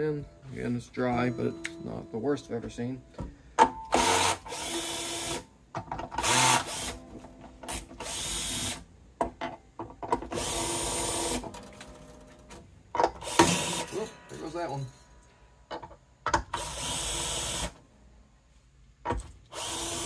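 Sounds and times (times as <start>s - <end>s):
guitar tuning machines whirring: 0.0s - 5.5s, 10.2s - 14.8s.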